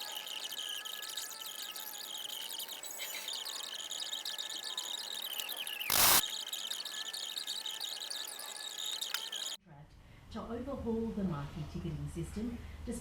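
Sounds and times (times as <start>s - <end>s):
high-pitched insect chirping: 0.0s - 9.6s.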